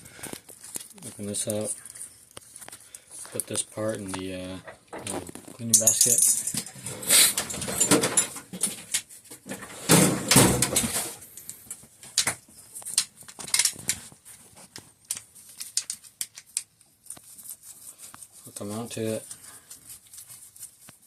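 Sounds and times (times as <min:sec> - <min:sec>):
small parts clicking and rattling: 0:05.0 - 0:06.8, 0:11.3 - 0:21.0.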